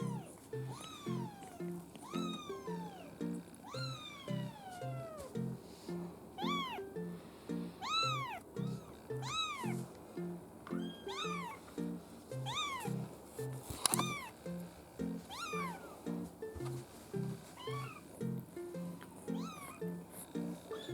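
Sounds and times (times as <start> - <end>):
kitten meowing: 0.0 - 5.3, 6.4 - 6.8, 7.8 - 9.9, 10.7 - 11.6, 12.4 - 13.0, 13.9 - 14.4, 15.3 - 16.0, 17.6 - 18.0, 19.2 - 19.8.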